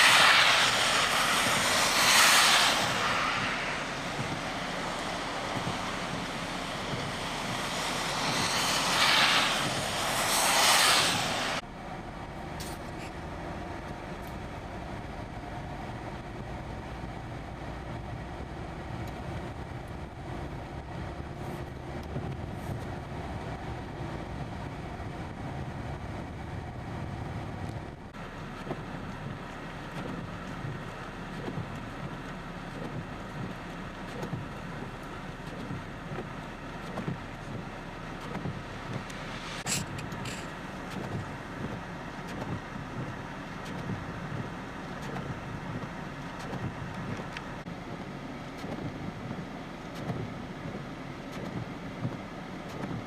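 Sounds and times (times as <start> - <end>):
tyres hissing: 0.0 - 11.6
traffic rumble: 0.0 - 53.0
vehicles passing on slush: 0.0 - 53.0.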